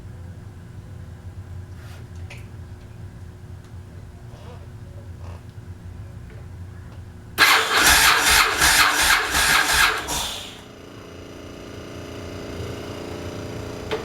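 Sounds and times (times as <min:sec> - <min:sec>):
motorcycle engine idling: 0:02.6 - 0:14.0
motorcycle starter cranking: 0:07.4 - 0:10.6.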